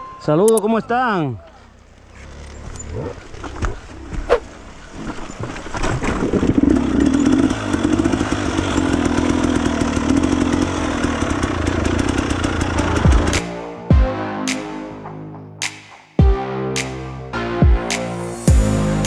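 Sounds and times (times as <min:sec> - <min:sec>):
dirt bike engine running hard: 0:06.2 - 0:13.4.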